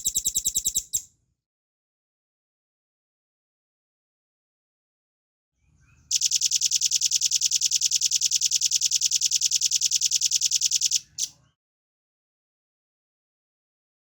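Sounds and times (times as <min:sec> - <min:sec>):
bird singing rapid trill: 0:00.0 - 0:01.0, 0:06.1 - 0:11.4.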